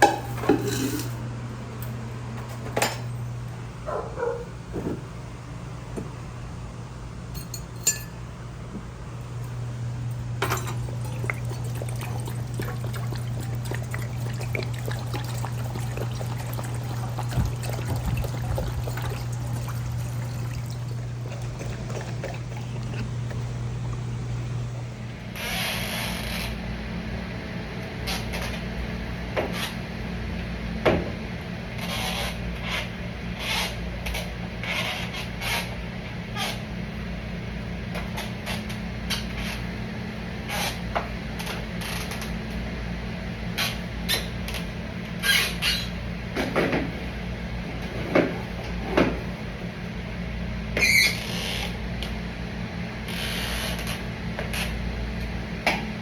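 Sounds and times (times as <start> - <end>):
water running: 9.2 - 25.0.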